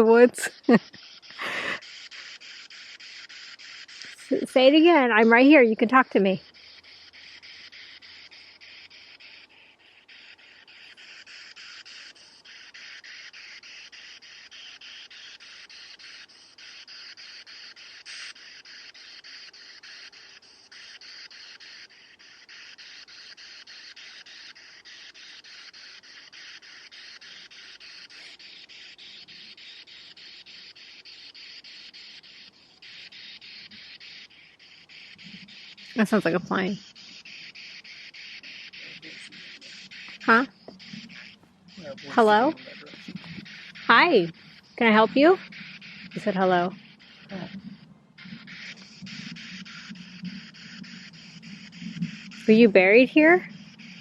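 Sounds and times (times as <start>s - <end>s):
radio static hiss: 0.0s - 3.1s, 35.0s - 54.0s.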